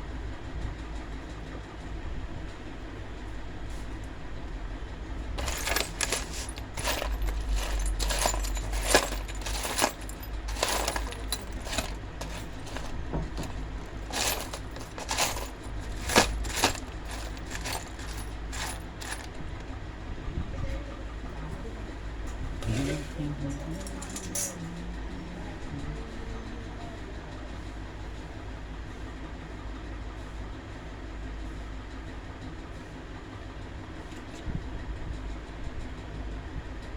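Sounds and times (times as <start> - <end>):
steady low hum: 2.5 - 28.3
small metal objects clinking: 5.4 - 19.6, 23.8 - 24.6.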